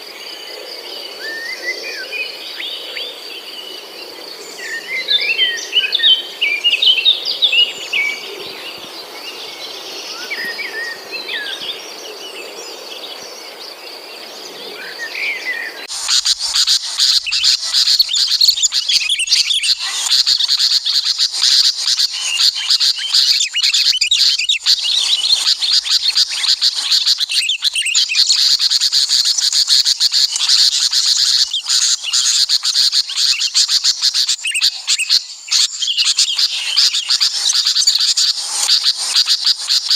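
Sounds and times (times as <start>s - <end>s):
small songbirds chirping: 0.0s - 39.9s
high insect buzz: 15.9s - 27.2s.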